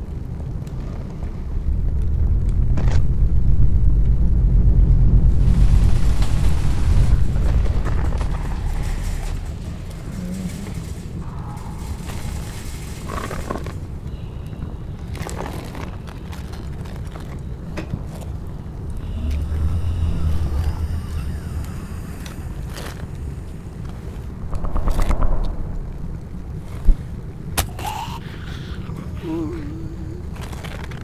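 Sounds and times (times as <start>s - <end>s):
passing vehicle rumble: 18.8s - 27.0s.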